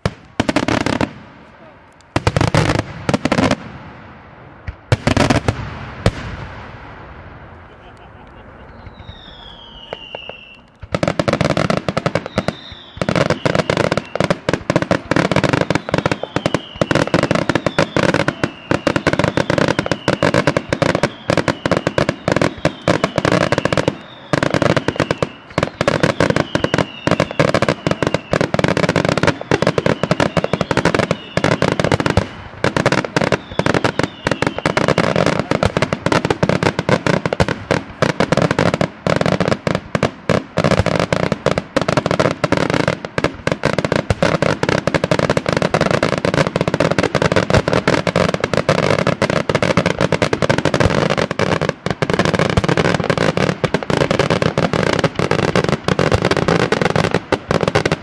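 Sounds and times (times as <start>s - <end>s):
falling firework whistles: 7.5s - 38.8s
firework shells bursting: 8.6s - 35.0s.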